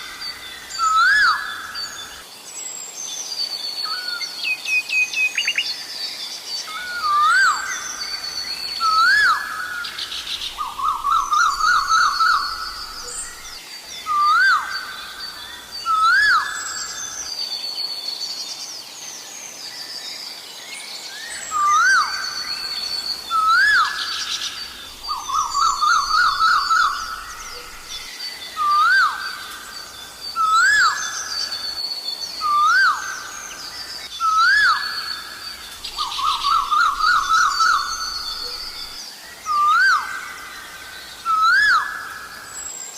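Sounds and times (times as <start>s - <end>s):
small birds chirping: 19.6s - 42.9s.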